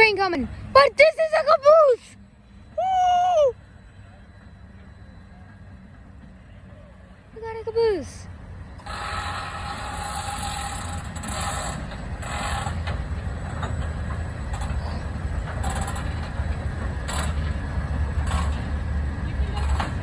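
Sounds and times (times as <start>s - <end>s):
freight train rumbling past: 0.0s - 20.0s
metallic wheel squeal: 8.7s - 18.6s.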